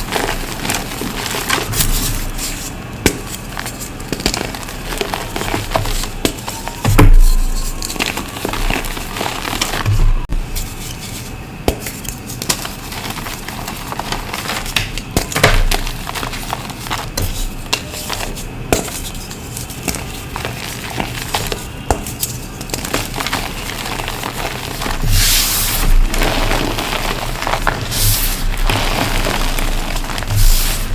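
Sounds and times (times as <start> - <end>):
chalk lumps crunching: 15.7 - 30.9.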